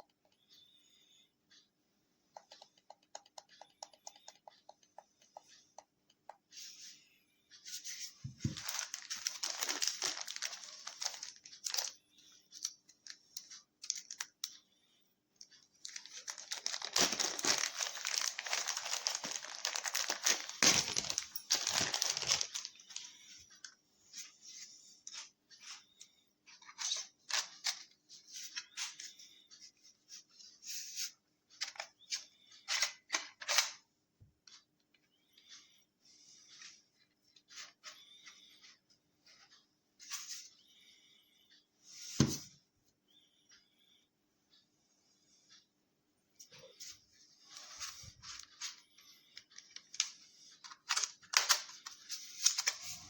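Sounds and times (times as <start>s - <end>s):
crinkling and rustling: 6.5s - 14.6s, 15.4s - 33.8s, 46.4s - 53.0s.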